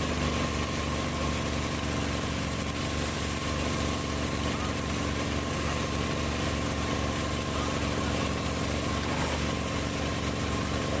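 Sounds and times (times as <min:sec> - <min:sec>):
grinder engine running: 0:00.0 - 0:11.0.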